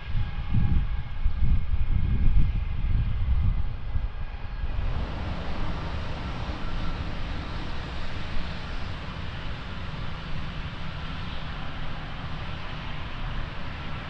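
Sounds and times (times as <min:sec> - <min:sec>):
jet engines rumbling and whining: 0:00.0 - 0:14.0
steady rushing noise: 0:04.3 - 0:14.0.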